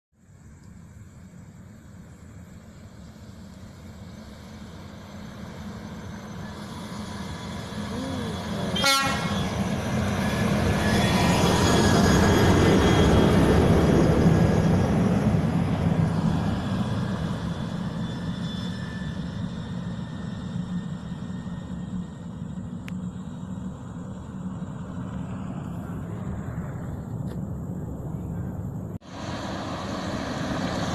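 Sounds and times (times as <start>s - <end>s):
heavy truck passing: 3.4s - 18.3s, 23.4s - 30.9s.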